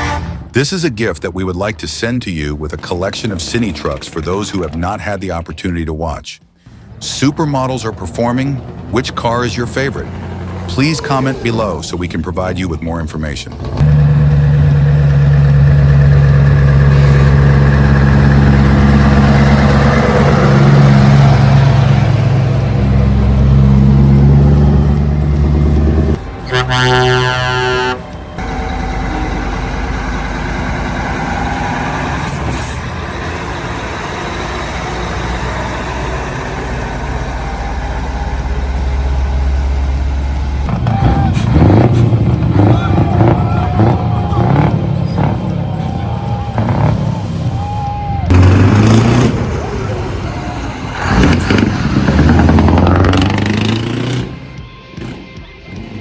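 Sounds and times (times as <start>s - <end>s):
truck horn: 0.0s - 0.6s, 13.8s - 55.2s
road rumble: 0.0s - 56.0s
heavy truck engine running: 6.4s - 56.0s.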